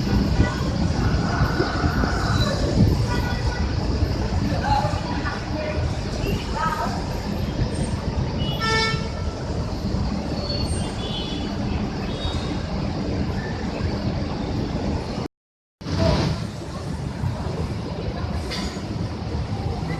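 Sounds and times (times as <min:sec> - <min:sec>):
bus engine and road noise: 0:00.0 - 0:19.9.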